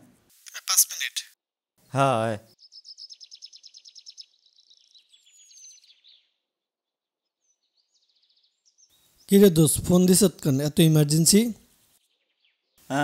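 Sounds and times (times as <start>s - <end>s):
songbird singing a fast trill: 2.5s - 6.5s, 7.2s - 9.4s, 12.0s - 12.8s.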